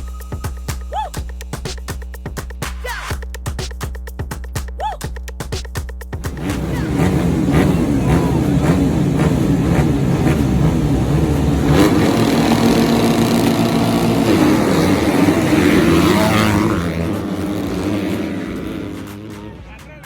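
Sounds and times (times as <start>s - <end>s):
motocross bike engines revving: 6.3s - 19.9s.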